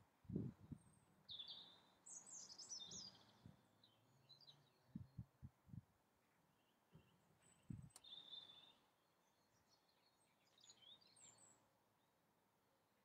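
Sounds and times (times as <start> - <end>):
birds chirping and twittering: 0.8 - 5.5, 6.2 - 12.2.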